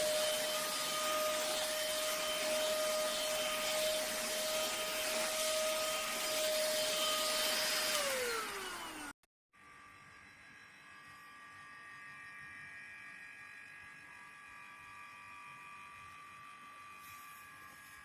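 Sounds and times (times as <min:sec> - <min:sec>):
handheld vacuum cleaner motor whining: 0:00.0 - 0:18.0.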